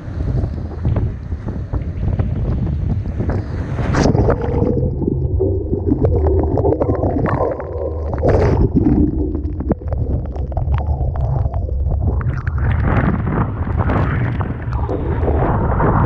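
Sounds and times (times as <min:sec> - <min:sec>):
water washing over microphone: 0:00.0 - 0:16.0
water splash: 0:03.7 - 0:16.0.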